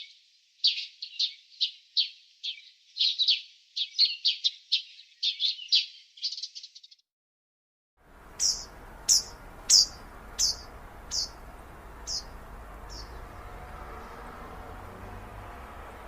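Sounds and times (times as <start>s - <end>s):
bird chirping: 0.0s - 7.0s, 8.1s - 16.0s
outdoor background noise: 8.0s - 16.0s.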